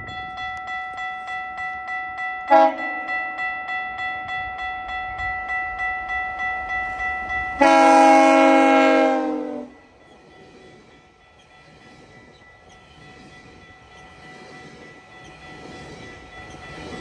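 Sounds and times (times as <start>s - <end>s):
crossing warning bell ringing: 0.0s - 17.0s
train air horn blast: 2.5s - 3.0s, 7.6s - 9.8s.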